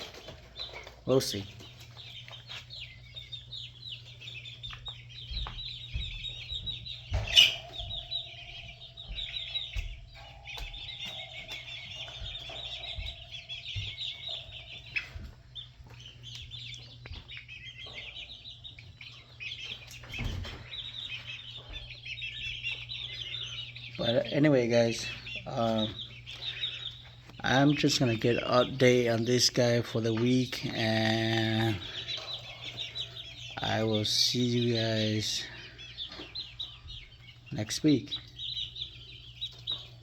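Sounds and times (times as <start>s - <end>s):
chicks peeping: 0.0s - 40.0s.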